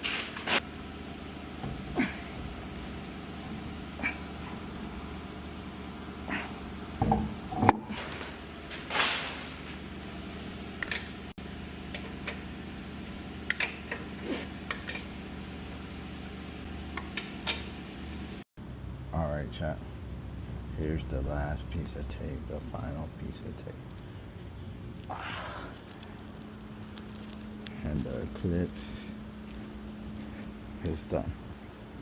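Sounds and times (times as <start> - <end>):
steady hum: 0.0 - 32.0
tape tearing: 8.7 - 9.7.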